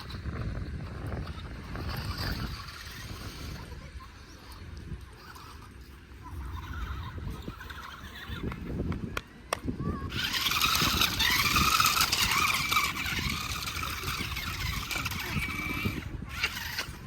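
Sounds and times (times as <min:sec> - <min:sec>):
electric motor whining: 0:00.0 - 0:09.0, 0:09.9 - 0:17.0.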